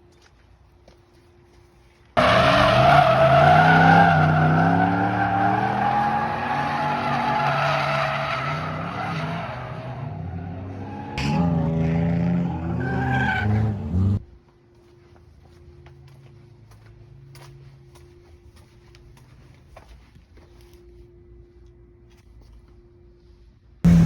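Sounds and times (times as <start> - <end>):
truck engine revving: 2.2 - 14.2.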